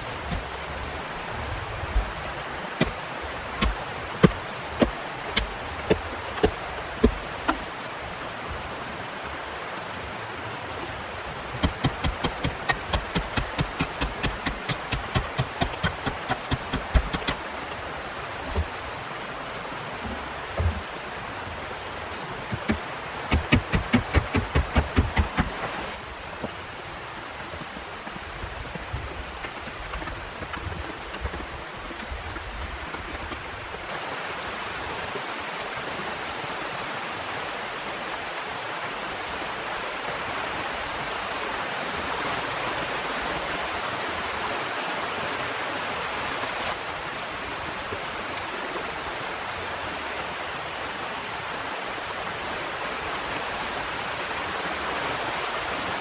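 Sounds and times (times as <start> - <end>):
heavy rain falling: 0.0 - 35.0.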